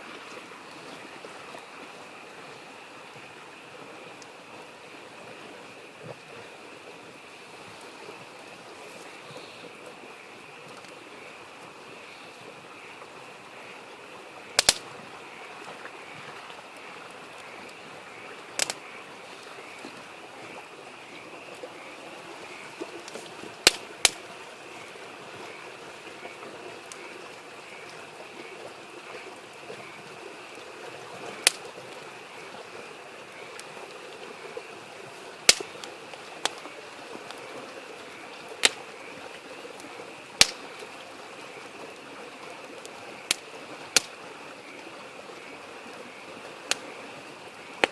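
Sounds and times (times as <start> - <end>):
babbling stream: 0.0 - 47.9
campfire crackling: 0.0 - 47.9
sharp fire pops: 14.5 - 14.9, 18.6 - 18.8, 23.6 - 24.2, 31.4 - 31.6, 35.4 - 36.6, 38.6 - 38.8, 40.4 - 40.6, 43.3 - 44.1.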